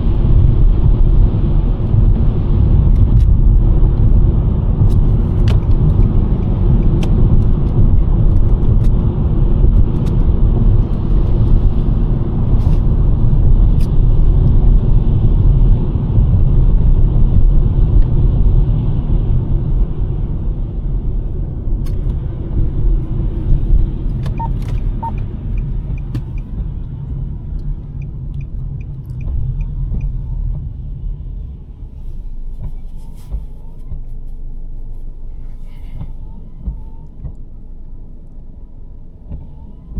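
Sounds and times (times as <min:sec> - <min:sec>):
road and tyre rumble: 0:00.0 - 0:39.9
evenly spaced ticks: 0:24.2 - 0:26.6.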